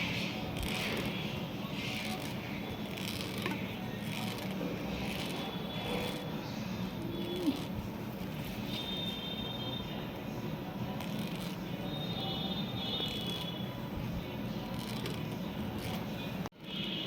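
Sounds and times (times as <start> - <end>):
thread rasping on hair: 0.0 - 6.3.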